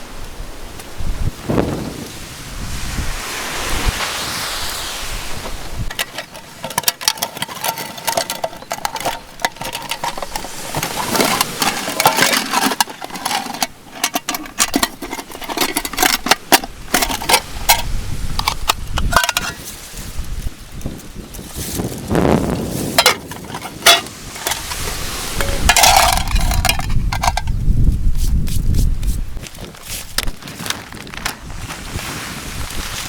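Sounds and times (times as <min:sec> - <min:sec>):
surf: 0:00.0 - 0:33.0
wind: 0:00.0 - 0:33.0
small hard objects clicking and clattering: 0:05.9 - 0:21.7, 0:23.0 - 0:27.6.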